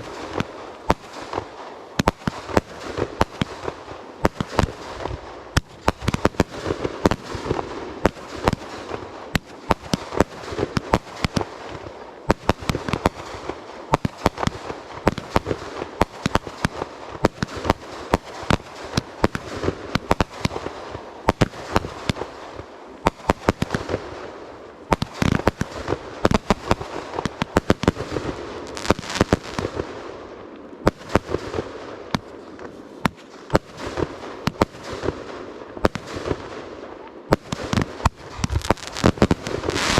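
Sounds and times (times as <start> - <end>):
fireworks crackling: 0.0 - 39.9
fireworks shells bursting: 37.5 - 39.9.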